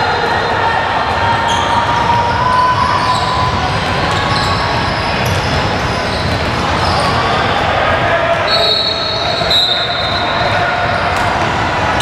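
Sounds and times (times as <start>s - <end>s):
crowd and players din in gym: 0.0s - 12.0s
basketball bouncing on court: 1.4s - 7.4s.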